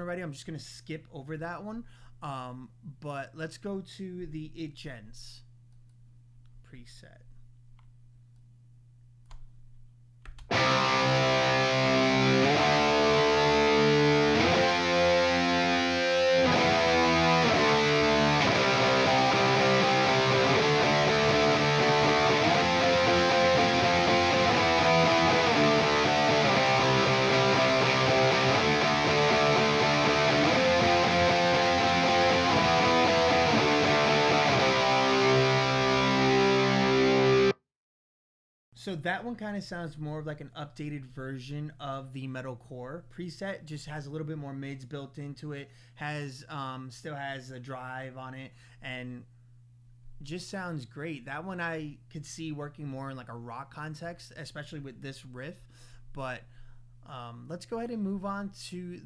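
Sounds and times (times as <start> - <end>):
distorted electric guitar riff: 10.5 - 37.6.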